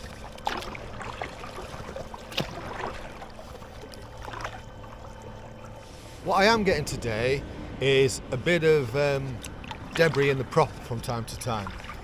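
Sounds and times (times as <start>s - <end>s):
water splashing and dripping: 0.0s - 5.8s, 9.4s - 12.0s.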